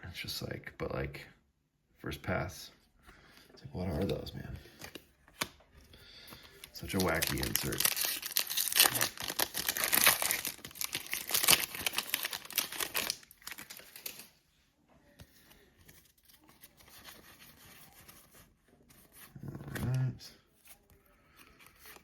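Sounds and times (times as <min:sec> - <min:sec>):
foil wrapper crinkling and tearing: 0:06.6 - 0:14.3.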